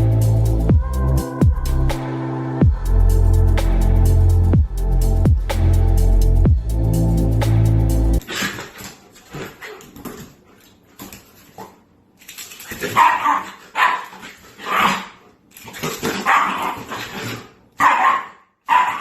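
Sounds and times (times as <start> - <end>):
dog barking: 13.0 - 15.1, 16.2 - 16.8, 17.8 - 19.0.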